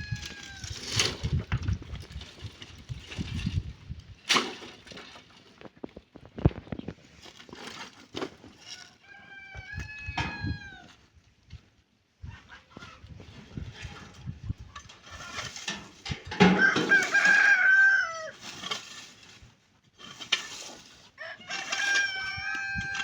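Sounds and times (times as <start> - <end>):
rooster crowing: 9.0 - 10.9, 16.5 - 18.4, 21.2 - 23.0.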